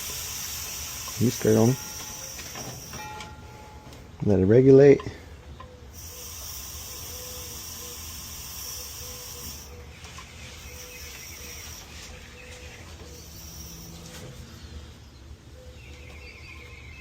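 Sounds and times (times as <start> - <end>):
gas hissing through hose: 0.0 - 3.0, 5.9 - 9.8, 10.4 - 11.9, 13.1 - 14.1.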